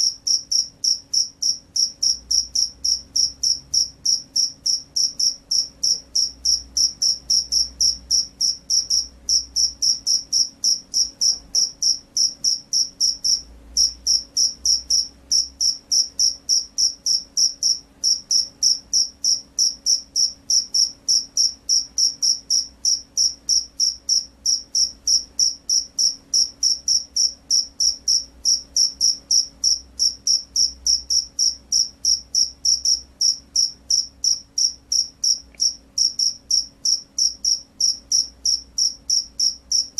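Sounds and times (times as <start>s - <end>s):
cricket chirping: 0.0s - 39.9s
faint low hum: 0.0s - 39.9s.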